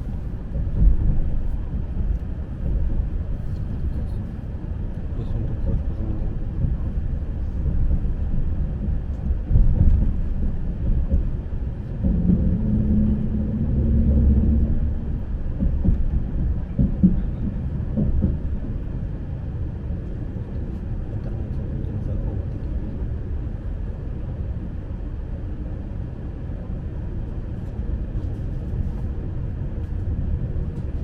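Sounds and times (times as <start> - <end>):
train rumble inside carriage: 0.0 - 31.0
electric hum: 12.0 - 16.5.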